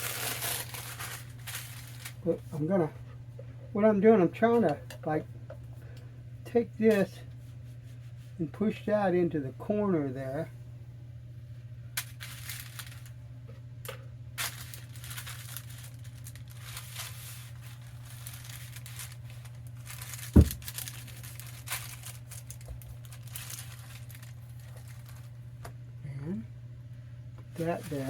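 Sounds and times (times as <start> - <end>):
wax paper crinkling: 0.0 - 2.6, 12.0 - 13.2, 14.4 - 25.6, 27.5 - 28.0.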